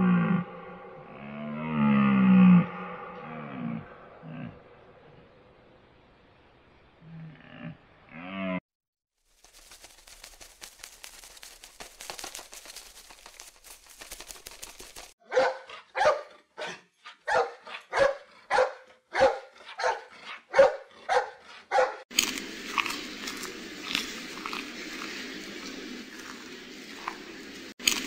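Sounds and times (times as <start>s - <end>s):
dog barking: 15.2s - 22.0s.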